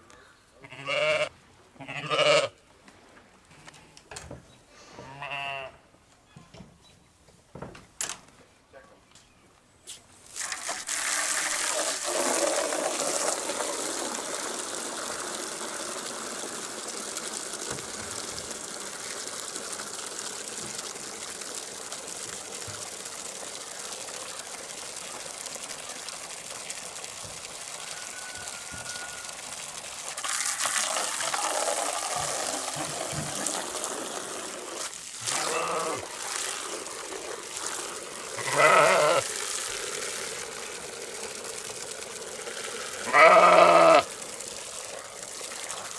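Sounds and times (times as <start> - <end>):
sheep bleating: 0.6 - 2.6, 5.1 - 5.8, 35.3 - 36.1, 38.4 - 39.3, 43.1 - 44.1.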